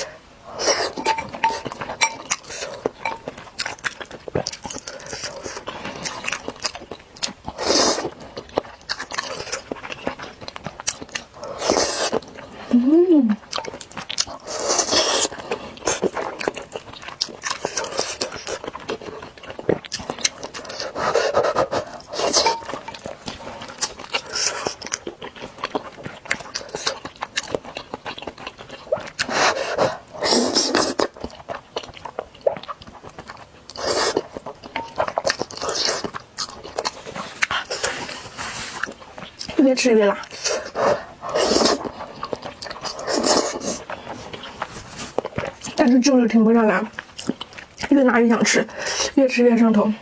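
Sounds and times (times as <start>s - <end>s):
wet chewing clicks: 0.6s - 12.7s, 13.3s - 49.2s
slurping noodles: 14.4s - 16.4s, 29.2s - 31.2s, 40.3s - 45.3s.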